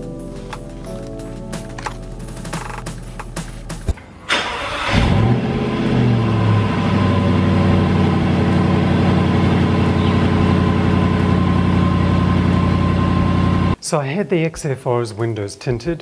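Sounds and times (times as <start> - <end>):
car engine starting and idling: 1.8 - 13.8.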